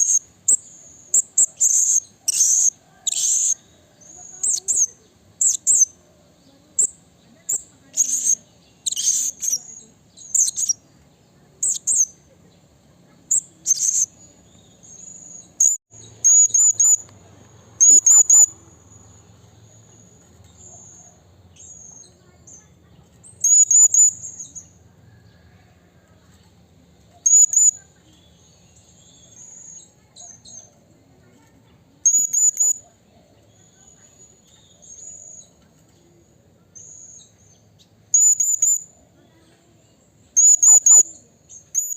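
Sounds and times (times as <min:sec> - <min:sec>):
parrot shrill calls: 0:17.8 - 0:18.5, 0:23.4 - 0:24.2, 0:27.2 - 0:27.8, 0:40.4 - 0:41.1.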